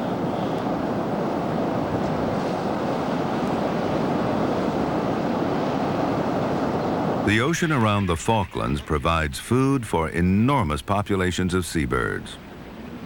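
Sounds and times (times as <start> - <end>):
sea surf: 0.0 - 13.0
wind: 0.0 - 13.0.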